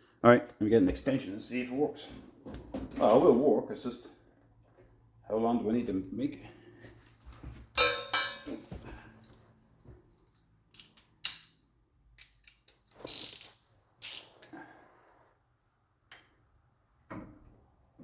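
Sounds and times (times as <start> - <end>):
metal tools clanking and clicking: 7.8 - 9.4, 10.2 - 11.5, 12.2 - 14.5.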